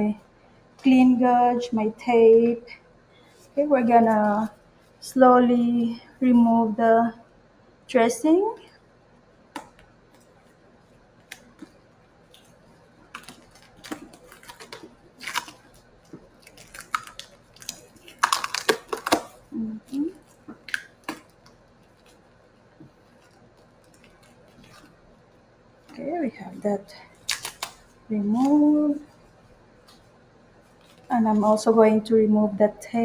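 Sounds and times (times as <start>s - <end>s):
adhesive dressing peeling crackling: 11.1s - 31.7s.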